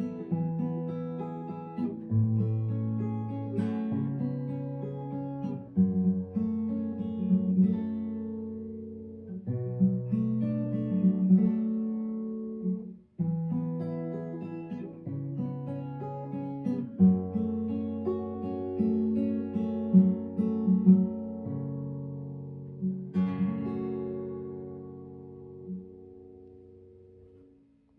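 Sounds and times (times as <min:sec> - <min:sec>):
acoustic guitar instrumental: 0:00.0 - 0:27.9.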